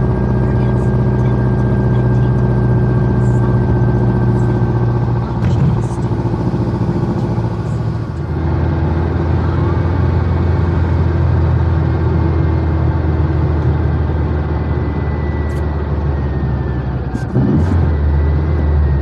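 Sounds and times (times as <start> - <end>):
car engine running: 0.0 - 19.0
road noise: 0.0 - 19.0.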